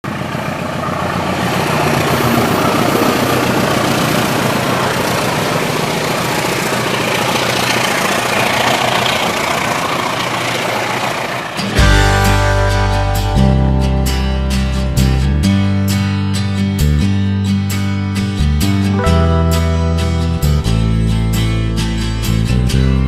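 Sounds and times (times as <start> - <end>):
diesel train passing: 0.1 - 16.3.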